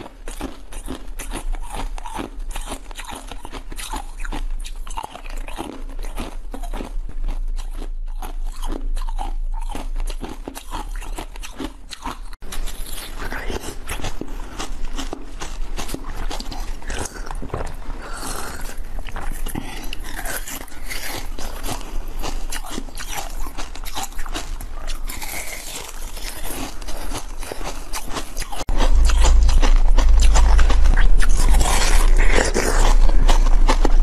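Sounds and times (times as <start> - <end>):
wet chewing and sucking: 0.0 - 34.0
low hum: 28.7 - 34.0.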